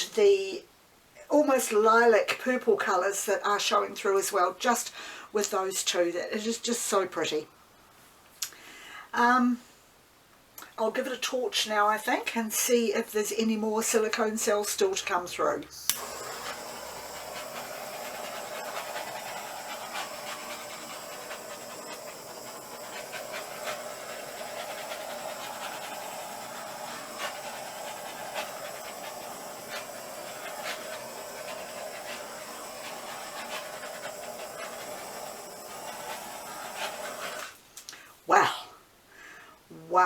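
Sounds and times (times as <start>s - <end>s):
butane torch hissing: 15.8s - 37.6s.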